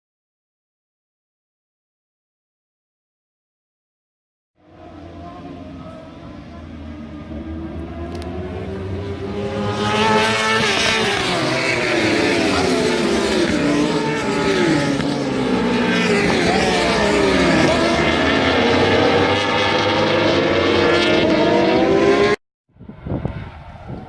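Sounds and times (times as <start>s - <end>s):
superbike engines revving: 4.6s - 22.4s
distant engine noise: 4.6s - 24.0s.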